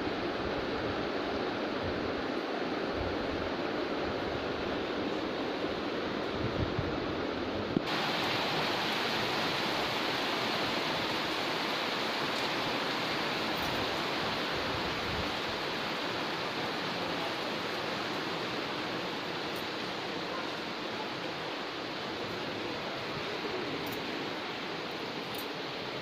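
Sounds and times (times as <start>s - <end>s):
heavy rain falling: 6.9s - 26.0s.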